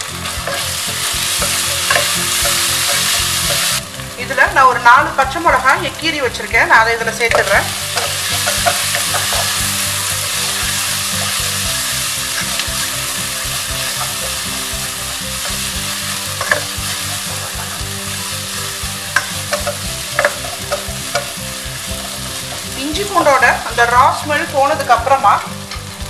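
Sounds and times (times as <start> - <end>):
food sizzling in hot oil: 0.0 - 26.0
wooden spatula scraping a pan: 7.3 - 23.1.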